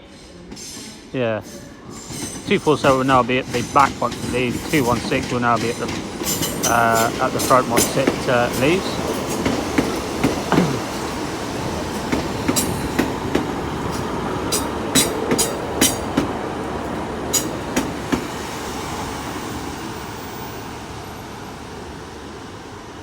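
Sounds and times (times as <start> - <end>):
train running noise: 0.0 - 23.0
train wheels clicking over rail joints: 0.2 - 18.4.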